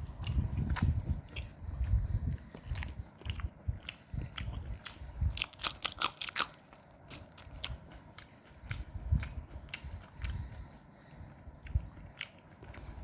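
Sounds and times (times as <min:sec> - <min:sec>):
chewing and biting food: 0:00.0 - 0:13.0
crisp food crunches: 0:02.8 - 0:07.8.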